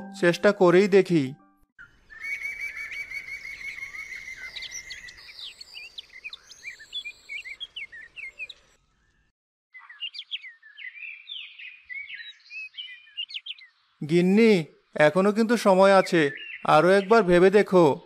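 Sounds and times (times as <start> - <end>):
songbirds chirping: 0.0 - 18.0
steady high bird whistle: 1.8 - 7.7.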